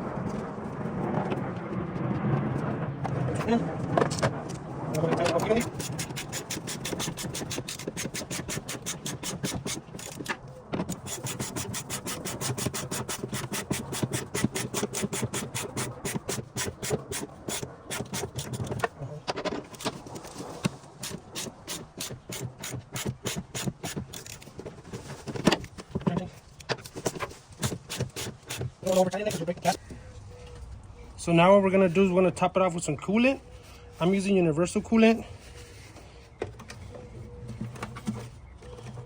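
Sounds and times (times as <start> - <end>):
ratchet wrench clicking: 5.6 - 10.3.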